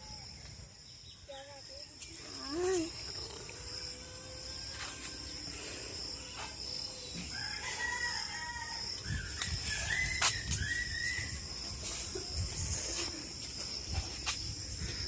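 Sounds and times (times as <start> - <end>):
high insect trill: 0.0 - 15.0
rooster crowing: 7.2 - 9.0.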